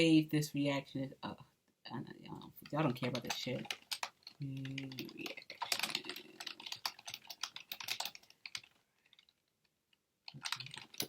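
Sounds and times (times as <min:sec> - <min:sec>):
typing on computer keyboard: 0:02.6 - 0:09.3, 0:10.3 - 0:11.0.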